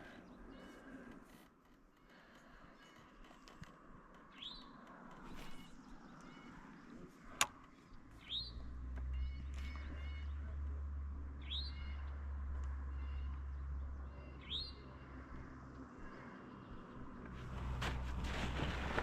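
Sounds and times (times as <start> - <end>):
bird calling: 4.2 - 10.7.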